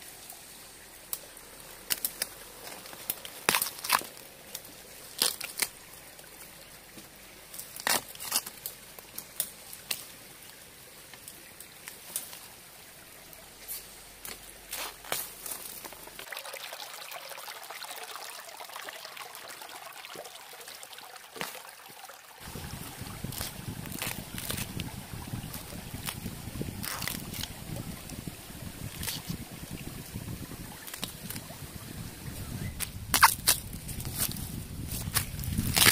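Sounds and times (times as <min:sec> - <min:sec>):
bamboo shoots snapping: 0:01.8 - 0:05.8, 0:07.6 - 0:10.1, 0:23.3 - 0:24.9, 0:25.5 - 0:27.6, 0:28.9 - 0:29.4, 0:30.8 - 0:31.4, 0:32.8 - 0:35.9
steady hiss: 0:07.4 - 0:16.2.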